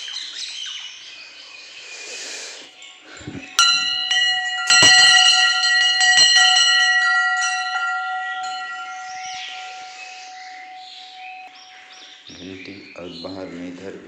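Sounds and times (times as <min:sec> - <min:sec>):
temple bell clanging and ringing: 0:03.1 - 0:12.5.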